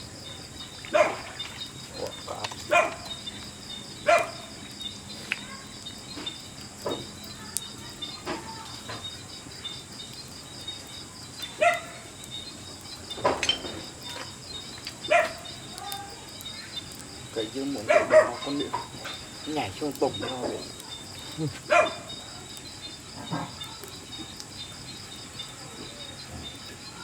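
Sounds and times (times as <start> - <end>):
insects chirping: 0.0 - 27.0
animal barking: 0.9 - 1.4, 2.0 - 3.2, 4.0 - 4.5, 11.6 - 12.0, 15.1 - 15.5, 17.8 - 19.2, 21.7 - 22.1.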